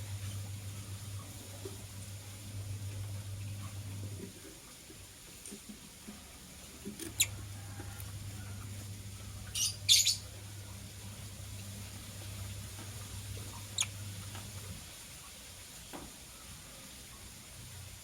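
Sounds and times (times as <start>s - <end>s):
low hum: 6.8s - 14.8s
lovebirds chirping: 9.2s - 10.9s, 13.1s - 14.4s.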